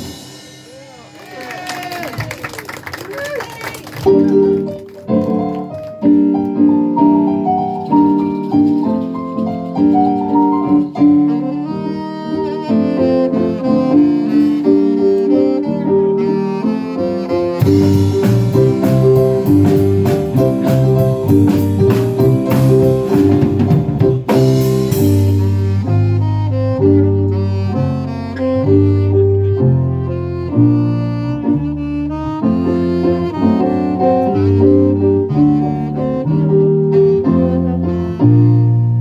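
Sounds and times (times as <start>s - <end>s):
bass and drums with cymbals: 0.0s - 1.2s, 17.6s - 27.1s
piano chords: 0.0s - 1.2s, 4.0s - 39.0s.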